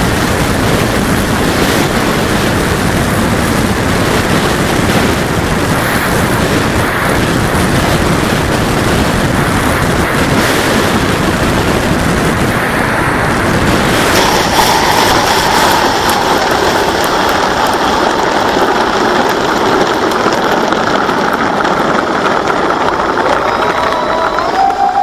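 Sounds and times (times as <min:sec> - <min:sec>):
rush of airflow: 0:00.0 - 0:20.2, 0:20.9 - 0:25.0
electric motor and propeller whine: 0:22.7 - 0:25.0.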